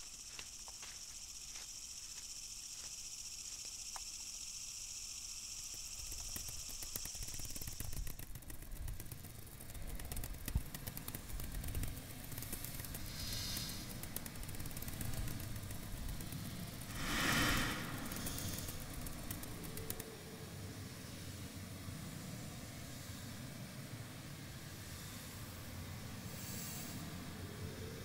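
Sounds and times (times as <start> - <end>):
high insect-like hiss: 0.0 - 28.0
crackles and clicks: 6.1 - 20.2
low rumble: 16.9 - 19.6.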